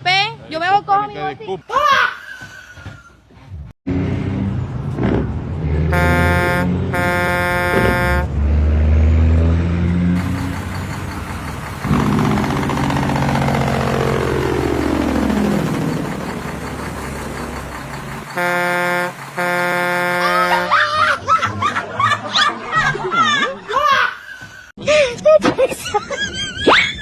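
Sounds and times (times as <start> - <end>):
truck engine passing by: 3.5 - 22.4
truck air horn blasting: 5.8 - 8.4, 18.3 - 20.9.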